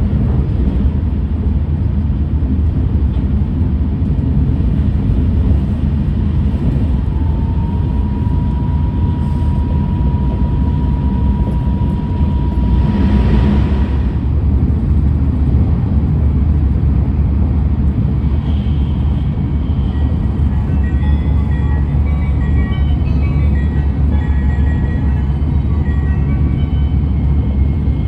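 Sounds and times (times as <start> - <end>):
train wheels rumbling on track: 0.0 - 28.0
high inverter whine: 6.4 - 14.4.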